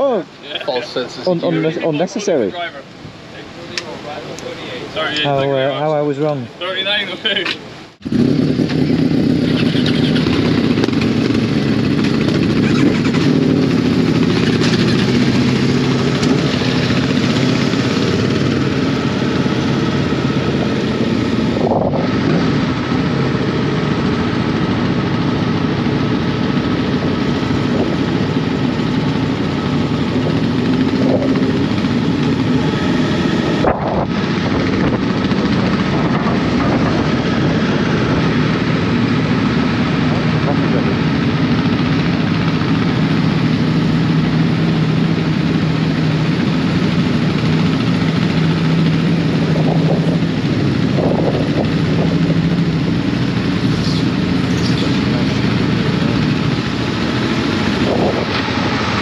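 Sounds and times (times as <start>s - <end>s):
motorcycle engine running: 6.6s - 59.0s
wind rushing: 8.0s - 41.7s, 49.2s - 52.7s, 55.6s - 59.0s.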